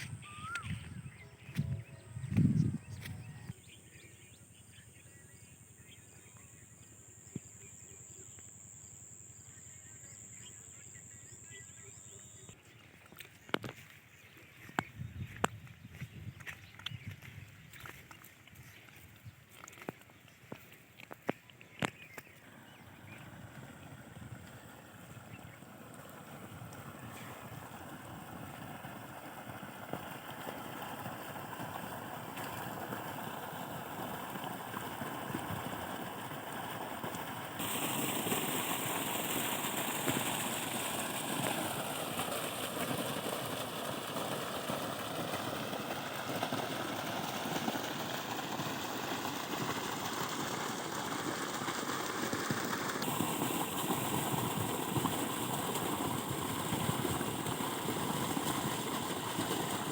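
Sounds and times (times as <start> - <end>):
diesel pump engine running: 0.0 - 5.6, 22.5 - 59.9
rushing pumped water: 22.4 - 59.9.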